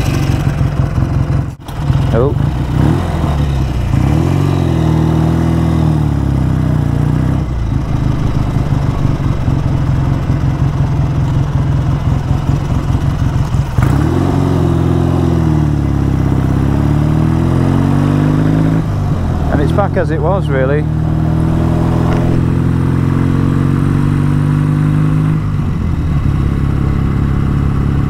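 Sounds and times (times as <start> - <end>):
motorcycle engine running unevenly: 0.0 - 28.0
sharp engine crack: 19.4 - 22.8.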